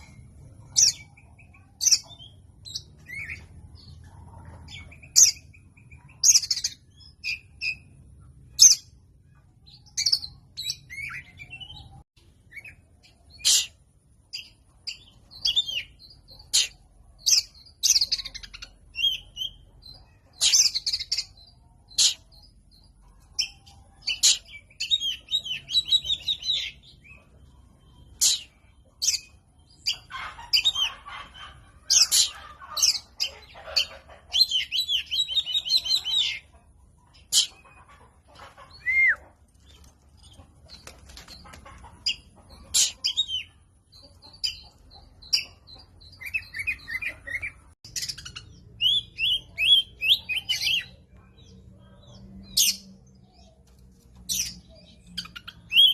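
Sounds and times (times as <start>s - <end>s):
bird singing whistled phrases: 38.8s - 39.2s.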